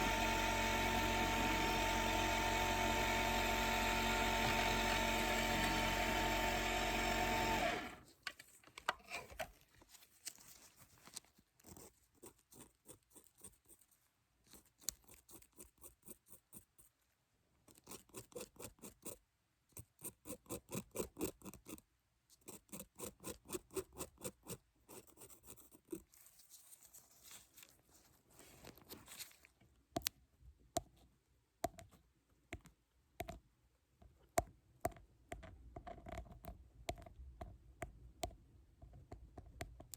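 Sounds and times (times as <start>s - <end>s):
dental drill whirring: 0.0s - 8.0s.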